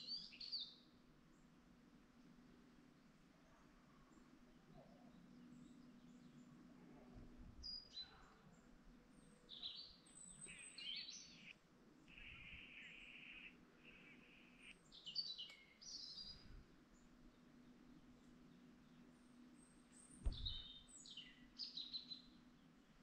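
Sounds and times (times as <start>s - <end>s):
faint steady hum: 0.0s - 23.0s
birds chirping: 7.6s - 23.0s.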